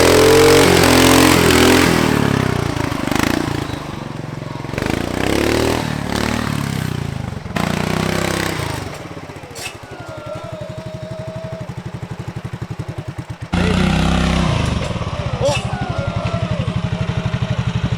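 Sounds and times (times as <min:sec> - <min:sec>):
lawn tractor engine revving: 0:00.0 - 0:17.9.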